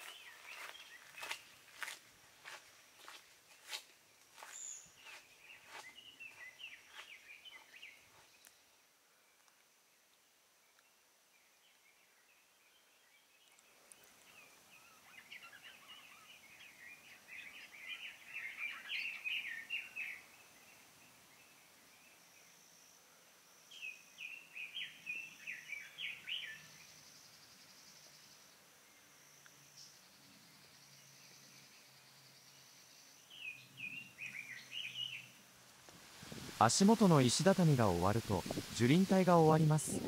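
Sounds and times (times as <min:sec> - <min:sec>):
songbird singing rapid high notes: 0:36.6 - 0:40.0.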